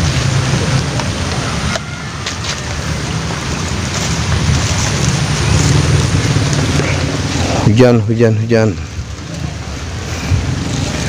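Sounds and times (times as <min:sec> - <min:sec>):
rain falling on lake: 0:00.0 - 0:11.0
wind rumbling on microphone: 0:00.0 - 0:11.0.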